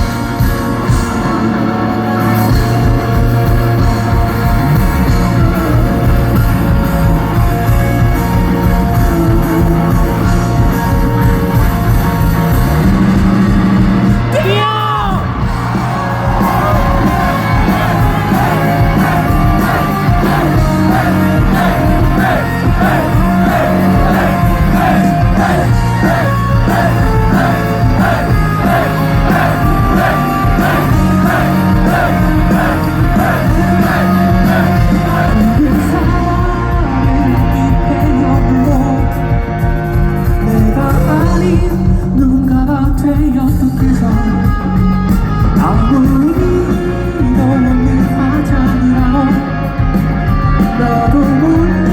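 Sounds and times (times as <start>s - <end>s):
live rock band playing: 0.0s - 51.9s
person singing: 16.6s - 39.2s.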